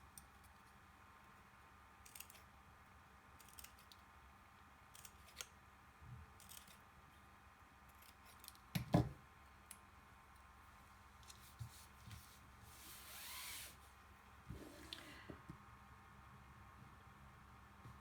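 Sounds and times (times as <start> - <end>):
scissors snipping paper: 4.9 - 5.5, 6.4 - 6.8.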